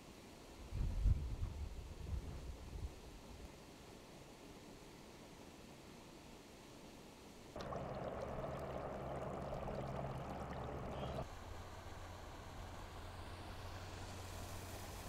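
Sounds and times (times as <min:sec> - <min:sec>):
faint outdoor ambience: 0:02.9 - 0:15.0
low hum: 0:07.6 - 0:11.3
running water rushing: 0:07.6 - 0:11.3.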